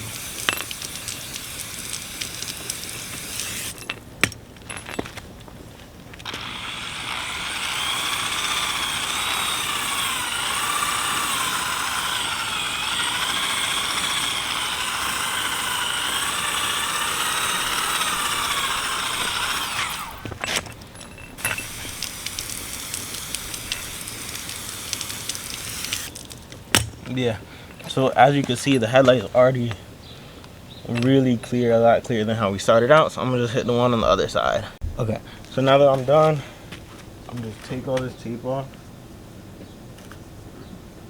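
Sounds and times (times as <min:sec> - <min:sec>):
drill sanding pad whine: 0:00.0 - 0:03.8, 0:06.3 - 0:26.1.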